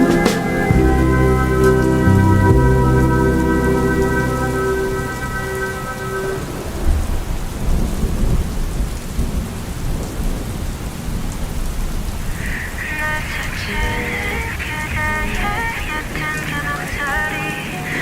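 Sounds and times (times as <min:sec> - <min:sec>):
song playing: 0:00.0 - 0:06.7, 0:13.0 - 0:18.0
rain falling: 0:00.0 - 0:18.0
thunder rumbling: 0:00.0 - 0:18.0.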